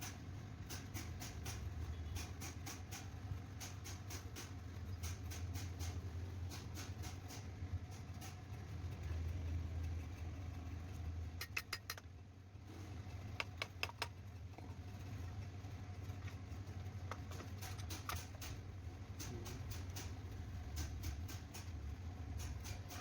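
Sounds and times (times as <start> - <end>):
small sharp clicks: 11.4 - 12.2, 13.3 - 14.2.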